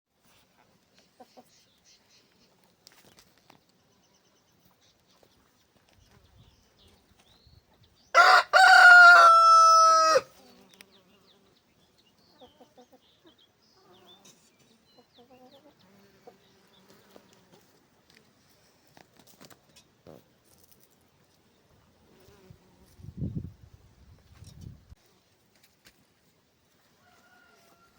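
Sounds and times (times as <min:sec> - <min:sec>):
rooster crowing: 0:08.1 - 0:10.3, 0:27.0 - 0:27.9.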